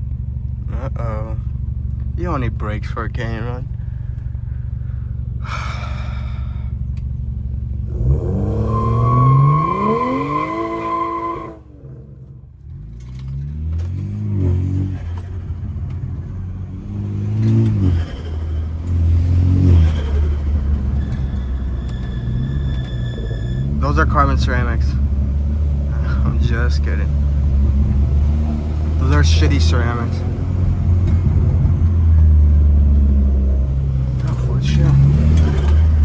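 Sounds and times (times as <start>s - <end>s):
car engine revving: 0.0s - 36.0s
turbo whine: 15.0s - 32.2s.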